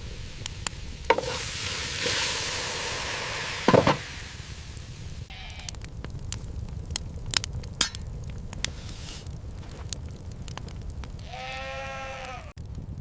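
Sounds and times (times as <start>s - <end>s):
food sizzling in a pan: 0.0s - 5.3s, 8.7s - 11.4s
knocks: 3.7s - 4.0s.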